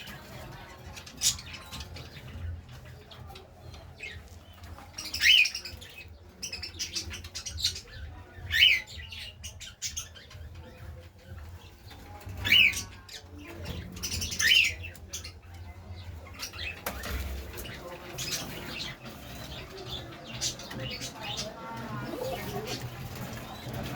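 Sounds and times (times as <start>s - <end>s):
clicks and scratching: 16.3s - 23.9s.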